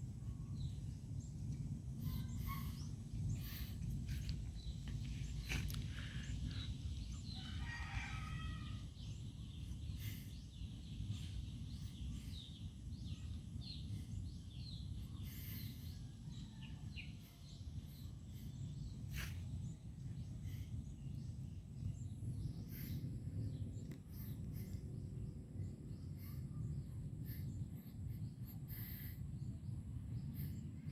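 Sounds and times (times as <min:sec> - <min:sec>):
steady low rumble: 0:00.0 - 0:30.9
small birds chirping: 0:00.1 - 0:30.9
rooster crowing: 0:07.4 - 0:08.8.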